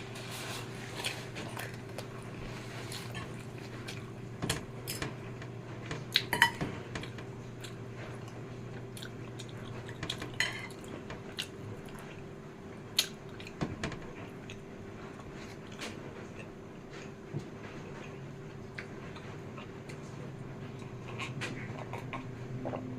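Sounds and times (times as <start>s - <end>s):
cutlery clinking against a dish: 6.2s - 6.7s, 10.2s - 10.8s
chewing: 7.0s - 12.3s, 14.2s - 22.9s.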